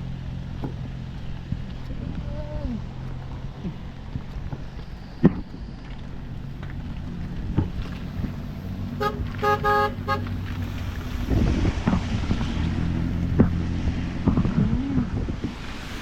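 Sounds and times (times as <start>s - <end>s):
vehicle engine passing: 0.0s - 16.0s
vehicle horn tooting: 9.0s - 10.4s.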